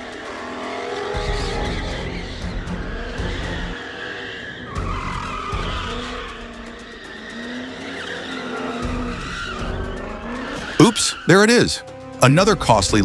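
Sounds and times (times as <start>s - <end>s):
tyres squealing: 0.6s - 13.0s
car engine running: 1.2s - 3.8s, 4.8s - 10.8s.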